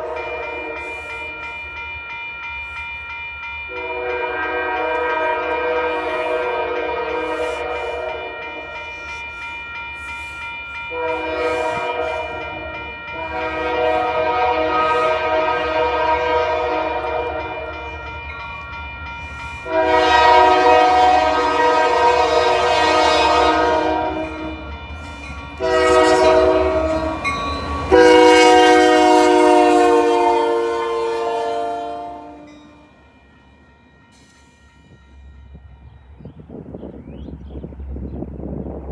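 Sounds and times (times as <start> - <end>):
locomotive air horn blasts: 0.0 - 1.1, 3.7 - 9.0, 10.9 - 17.9, 19.6 - 24.6, 25.6 - 32.8
low rumble of train: 0.0 - 38.9.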